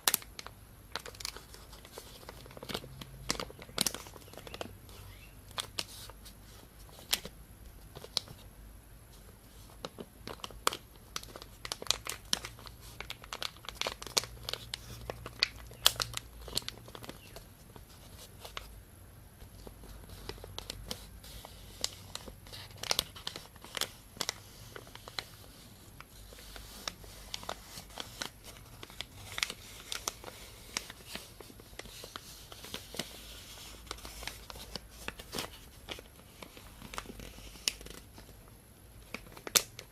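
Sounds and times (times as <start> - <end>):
plastic bag crinkling: 0.0 - 6.2, 9.6 - 18.7, 19.4 - 38.4.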